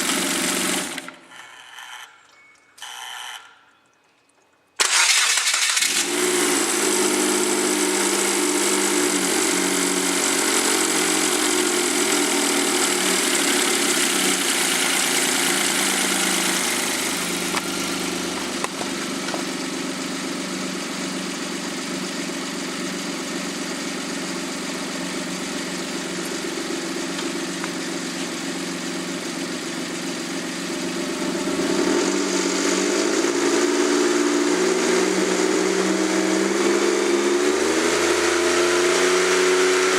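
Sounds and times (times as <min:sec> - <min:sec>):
car engine idling: 0:04.8 - 0:32.2.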